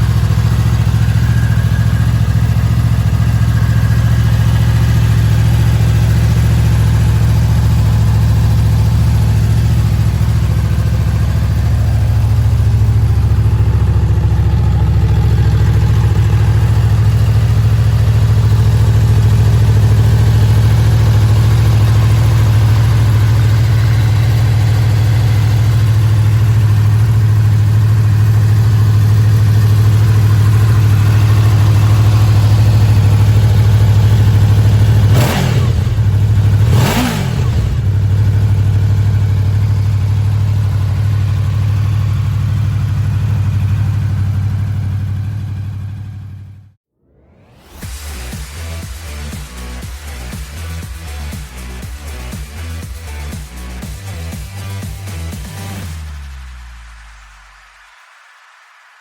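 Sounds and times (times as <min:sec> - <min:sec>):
motorcycle engine idling: 0:00.0 - 0:46.8.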